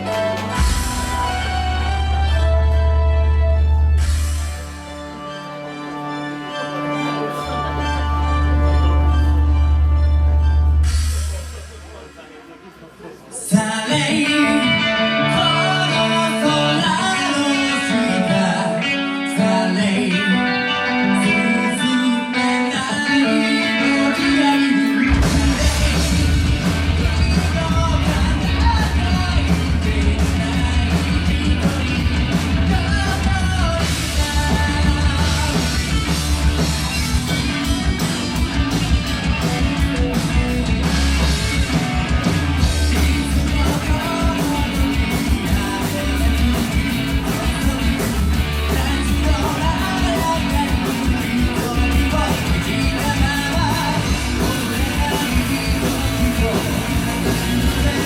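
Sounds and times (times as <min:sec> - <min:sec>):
rock band playing live: 0:00.0 - 0:58.0
lead singer singing: 0:13.4 - 0:36.8, 0:42.6 - 0:58.0.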